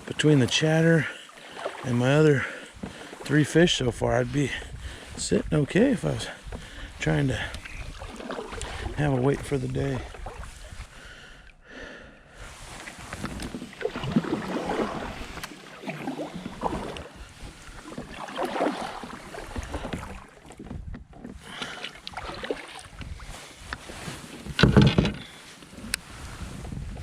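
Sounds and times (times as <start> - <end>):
water sloshing: 0.0 - 11.6, 12.5 - 26.3
small knocks on kayak: 24.4 - 25.2.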